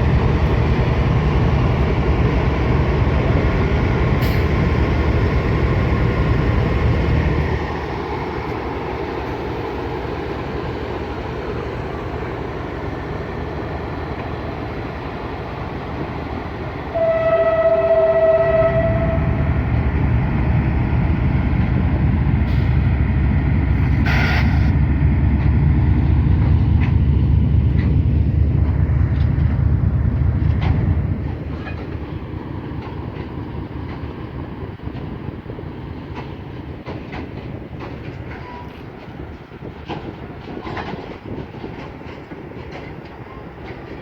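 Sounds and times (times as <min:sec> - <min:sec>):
rail clatter: 0:00.0 - 0:44.0
train rumbling past: 0:00.0 - 0:44.0
train horn blast: 0:16.9 - 0:19.6.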